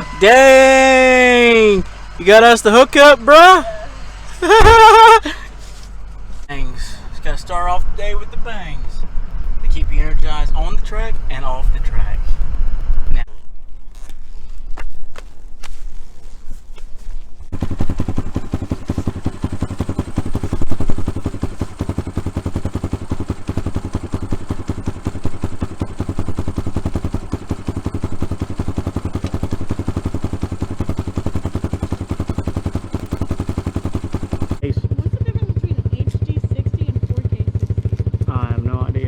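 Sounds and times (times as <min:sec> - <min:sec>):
engine revving: 0:00.0 - 0:05.3, 0:17.5 - 0:34.7
dirt bike engine idling: 0:00.0 - 0:09.6, 0:17.4 - 0:39.0.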